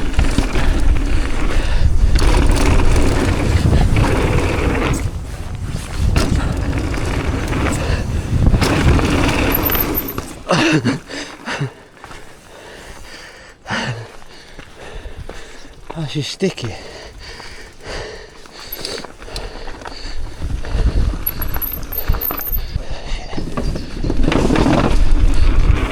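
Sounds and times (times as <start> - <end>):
wind rumble on microphone: 0.0 - 10.4, 19.3 - 25.9
bike tyres clattering: 0.0 - 25.9.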